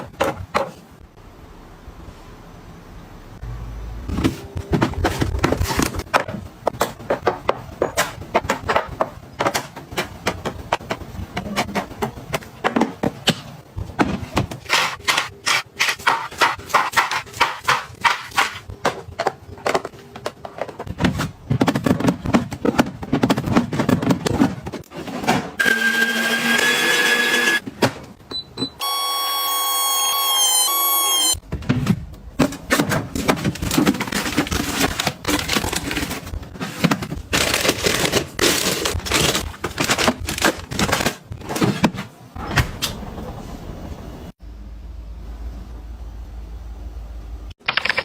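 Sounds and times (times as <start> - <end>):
household items clicking and knocking: 4.6 - 25.5, 31.6 - 42.1.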